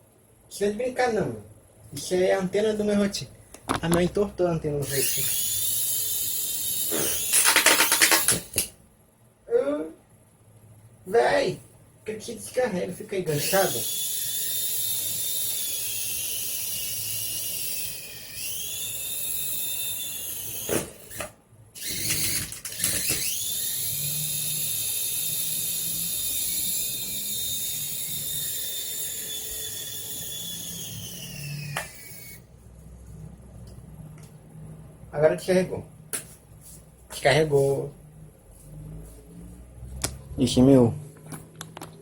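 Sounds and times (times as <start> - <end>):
toy helicopter rotor motor whine: 4.8 - 8.6, 13.3 - 32.5.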